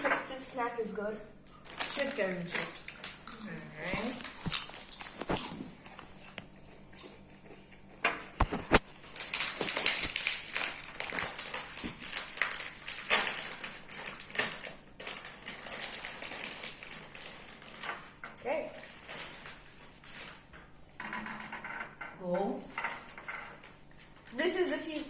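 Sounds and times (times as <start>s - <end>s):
snack packaging crinkling: 1.5s - 20.7s
chips crunching: 8.4s - 18.2s.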